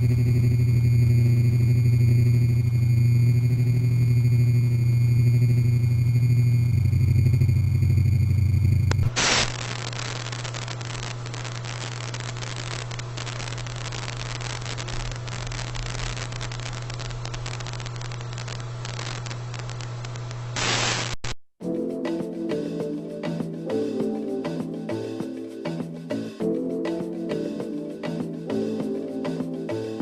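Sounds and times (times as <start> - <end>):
steady low hum: 0.0 - 21.2
loud low buzzing tone: 0.0 - 21.4
television static hiss: 8.9 - 21.4.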